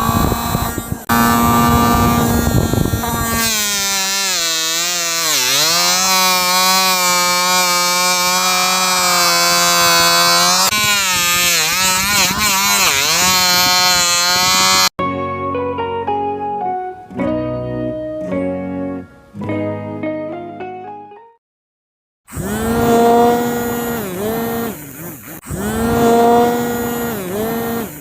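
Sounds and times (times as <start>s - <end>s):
small motor whining: 0.0s - 14.9s, 22.3s - 28.0s.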